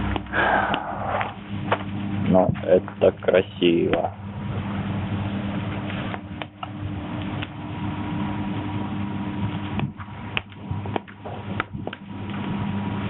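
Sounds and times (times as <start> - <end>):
campfire crackling: 0.0 - 13.0
low electrical hum: 0.0 - 13.0
sharp fire pops: 5.5 - 7.6, 9.4 - 12.6.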